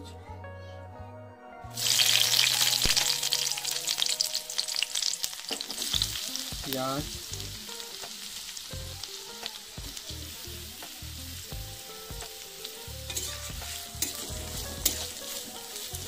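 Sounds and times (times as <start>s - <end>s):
onions sizzling in hot oil: 1.8s - 16.0s
spatula scraping and clicking on pan: 13.1s - 15.5s.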